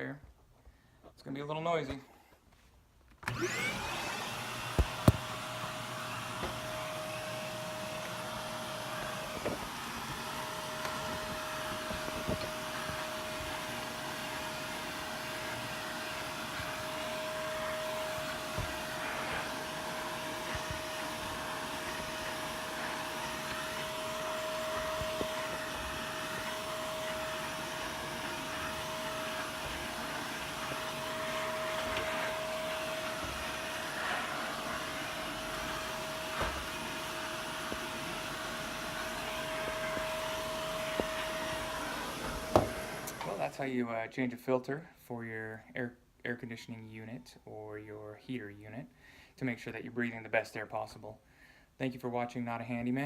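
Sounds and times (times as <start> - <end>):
vacuum cleaner running: 3.2 - 43.6.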